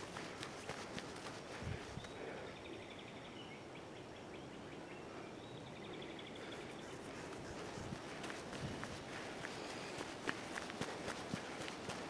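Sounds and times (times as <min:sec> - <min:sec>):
footsteps on dirt trail: 0:00.0 - 0:02.1, 0:06.5 - 0:12.0
birds singing: 0:01.8 - 0:10.2.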